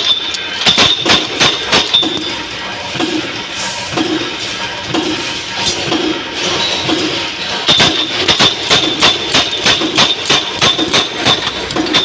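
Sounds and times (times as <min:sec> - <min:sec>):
punch press stamping: 0:00.0 - 0:02.3, 0:07.7 - 0:12.0.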